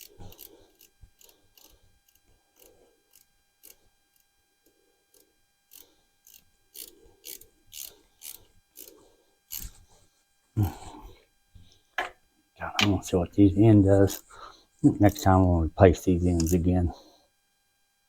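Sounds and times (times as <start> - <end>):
ratchet wrench clicking: 0.0 - 3.8, 5.1 - 8.9.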